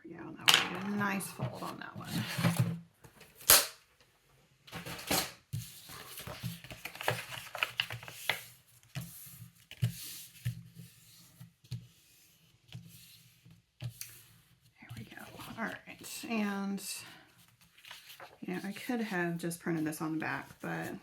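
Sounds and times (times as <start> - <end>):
paper rustling and crinkling: 4.7 - 12.1, 17.0 - 21.0
sharp paper crackle: 5.9 - 8.4, 17.6 - 18.8.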